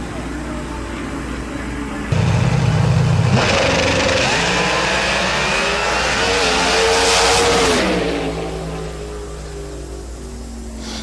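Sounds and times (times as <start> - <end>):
car engine revving: 2.1 - 10.1.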